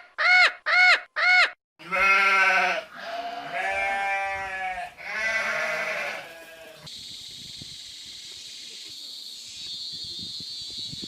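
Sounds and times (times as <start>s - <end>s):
sheep bleating: 1.8s - 6.9s.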